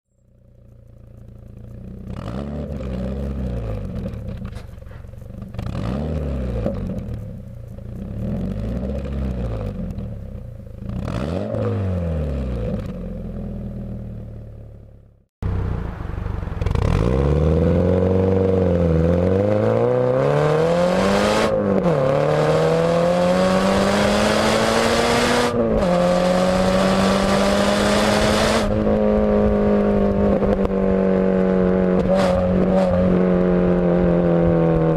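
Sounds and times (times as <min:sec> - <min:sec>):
car engine idling and revving: 0:00.1 - 0:34.9
car accelerating and shifting: 0:00.3 - 0:34.9.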